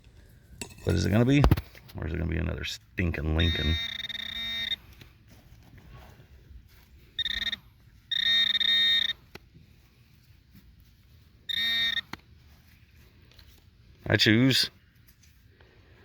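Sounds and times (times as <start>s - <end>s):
metal detector beeps: 3.1s - 5.0s, 7.0s - 9.4s, 11.4s - 12.2s.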